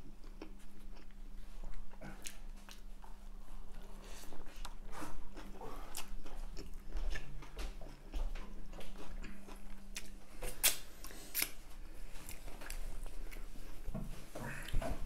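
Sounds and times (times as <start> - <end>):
chewing with wet mouth clicks: 0.1 - 3.0, 4.5 - 11.6.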